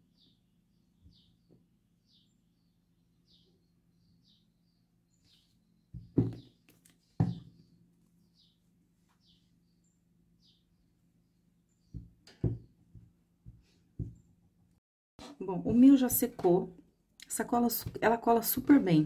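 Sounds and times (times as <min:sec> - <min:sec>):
small bird chirping: 0:00.0 - 0:12.7
dull thumps on table: 0:06.0 - 0:06.5, 0:07.2 - 0:07.5, 0:11.9 - 0:14.2.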